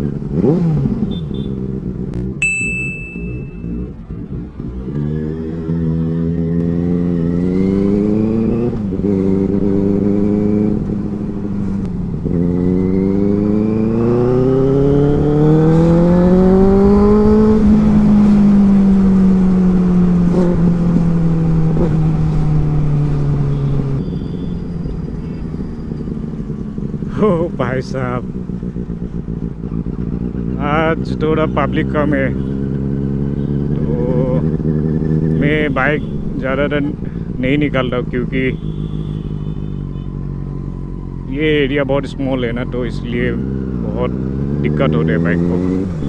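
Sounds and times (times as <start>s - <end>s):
motorcycle engine accelerating: 0.0s - 46.0s.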